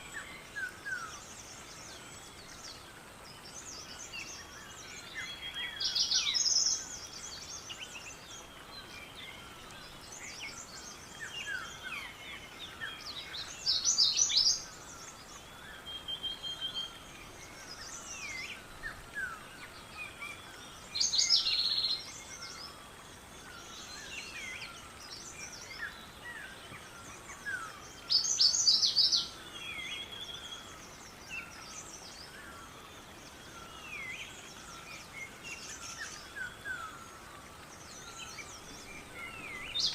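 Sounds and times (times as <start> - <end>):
birds chirping and whistling: 37.8 - 39.9
loud rapid bird song phrase: 37.8 - 39.9.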